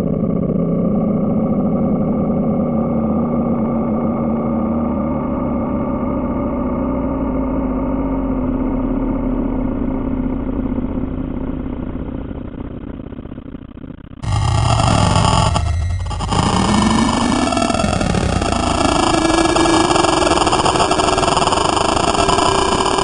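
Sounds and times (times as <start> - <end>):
rumbling drone with low hum: 0.0 - 23.0.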